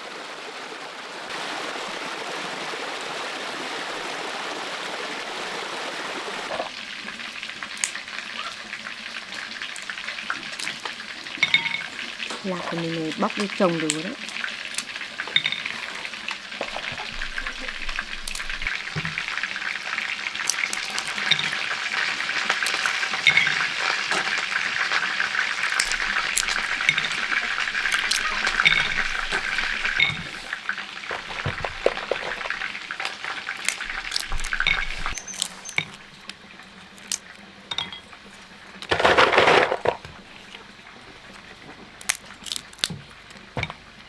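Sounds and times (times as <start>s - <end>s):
food sizzling in frying pan: 6.4s - 44.0s
utensil clinks: 7.7s - 19.3s, 20.4s - 40.6s.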